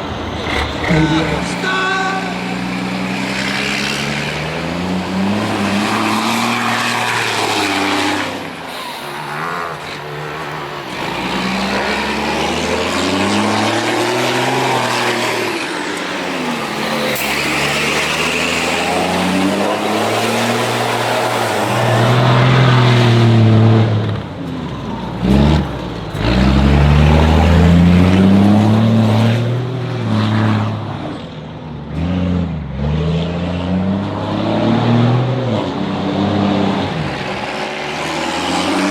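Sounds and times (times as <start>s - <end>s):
truck diesel engine revving: 0.0s - 31.1s, 31.8s - 38.9s.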